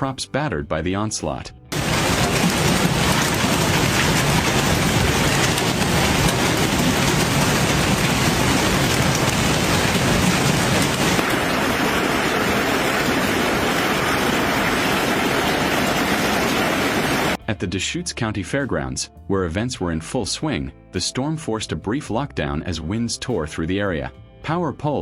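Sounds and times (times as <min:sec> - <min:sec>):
hail and heavy rain pounding: 0:01.7 - 0:17.4.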